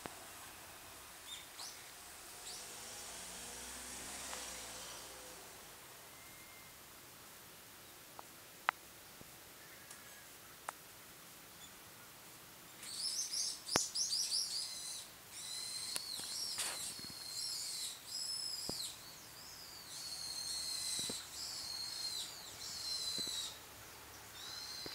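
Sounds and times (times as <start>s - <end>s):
small songbirds twittering: 0.0s - 6.9s, 12.7s - 24.9s.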